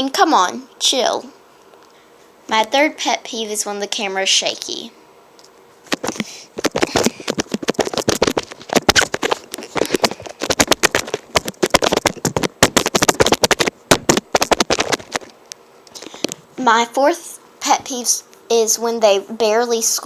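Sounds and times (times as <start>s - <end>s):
recording device being shaken: 5.8s - 15.4s.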